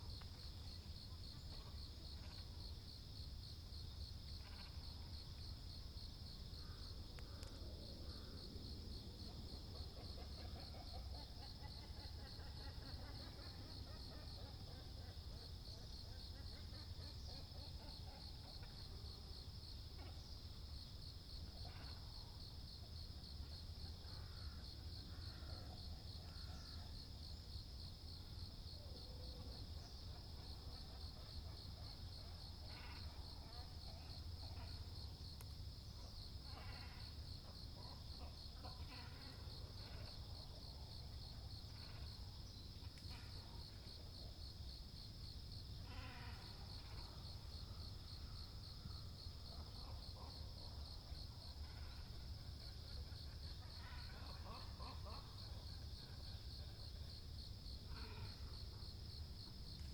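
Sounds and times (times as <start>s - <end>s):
high pulsing insect trill: 0.1s - 10.4s.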